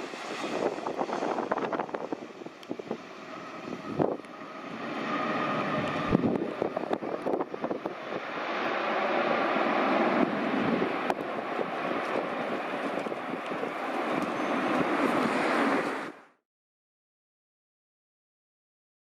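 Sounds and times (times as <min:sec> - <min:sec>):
jet engines running: 0:00.0 - 0:16.3.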